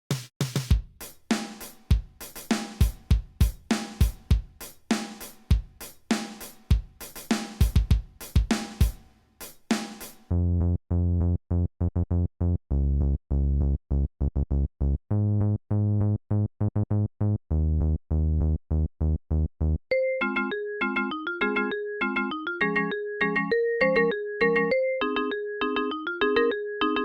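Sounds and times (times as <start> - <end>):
electronic drum machine beat: 0.4 - 10.3.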